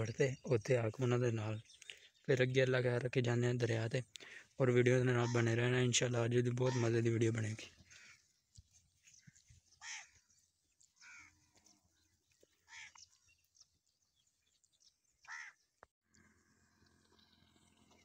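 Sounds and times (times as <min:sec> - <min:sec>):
bird calling: 0:06.6 - 0:13.6, 0:15.2 - 0:18.0.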